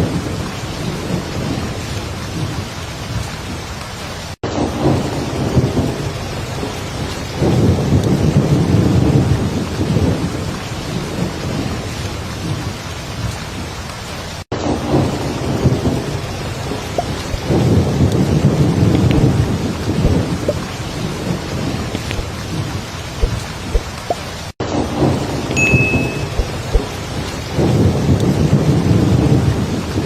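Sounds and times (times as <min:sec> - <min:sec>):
heavy rain pouring: 0:00.0 - 0:30.0
thunder rumbling: 0:14.7 - 0:30.0.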